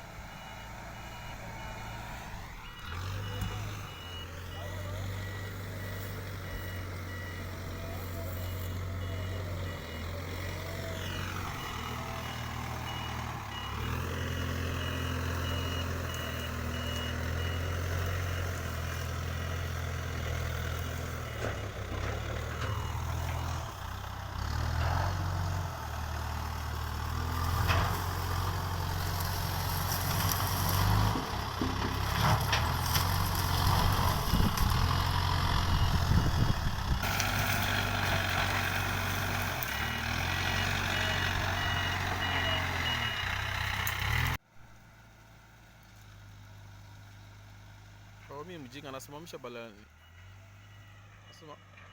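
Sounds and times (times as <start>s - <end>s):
reversing alarm beeping: 0.0s - 24.6s, 38.1s - 44.4s, 48.6s - 51.9s
diesel engine under load: 0.0s - 51.9s.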